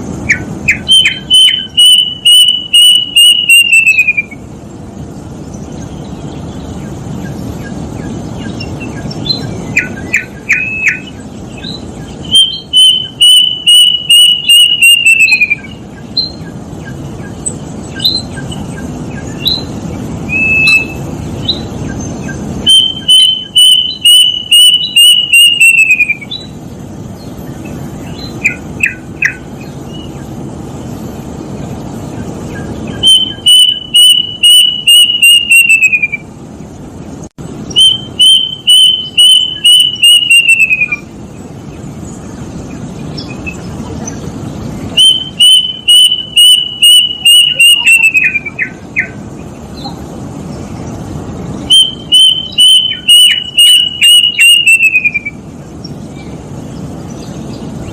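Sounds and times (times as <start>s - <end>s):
steady background hiss: 0.0s - 57.9s
cuckoo whistled song: 0.2s - 4.5s, 7.6s - 26.6s, 28.1s - 30.1s, 32.5s - 36.3s, 37.7s - 41.1s, 44.9s - 49.2s, 51.7s - 55.4s.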